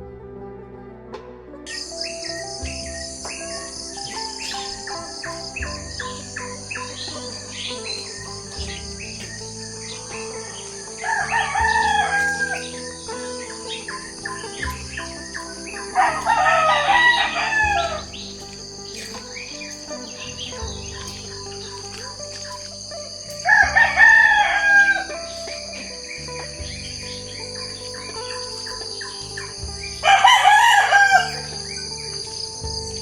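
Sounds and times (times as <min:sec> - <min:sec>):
faint background music: 0:00.0 - 0:33.0
high insect drone: 0:01.7 - 0:33.0
small birds chirping: 0:01.7 - 0:33.0
rooster crowing: 0:11.0 - 0:12.9, 0:15.9 - 0:18.7, 0:23.4 - 0:25.6, 0:30.0 - 0:31.9.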